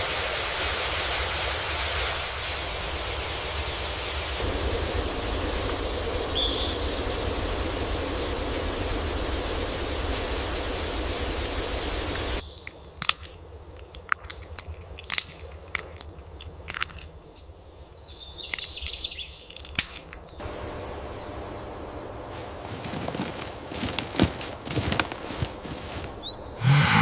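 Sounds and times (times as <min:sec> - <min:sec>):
steady outdoor noise: 0:00.0 - 0:27.0
sharp crunching clicks: 0:12.4 - 0:17.5, 0:18.4 - 0:20.4.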